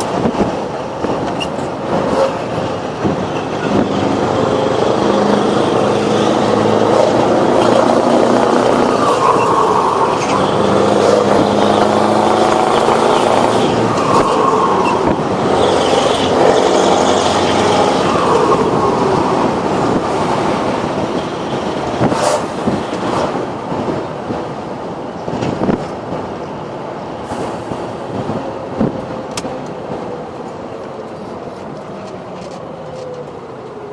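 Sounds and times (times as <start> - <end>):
diesel engine revving: 0.0 - 23.8.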